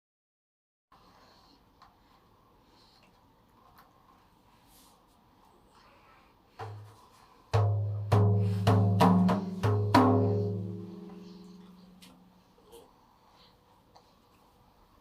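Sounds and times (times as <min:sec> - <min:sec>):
frame drum struck by hand: 0:07.5 - 0:11.2.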